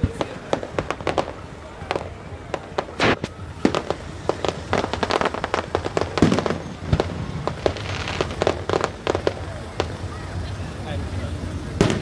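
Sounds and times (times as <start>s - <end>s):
fireworks bangs and crackles: 0.0s - 12.0s
deep firework boom: 2.0s - 10.5s, 11.7s - 12.0s.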